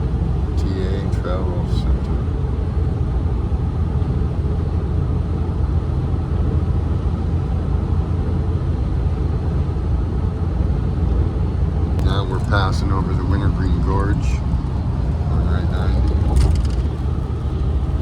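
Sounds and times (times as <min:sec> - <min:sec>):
road and engine rumble in car: 0:00.0 - 0:18.0.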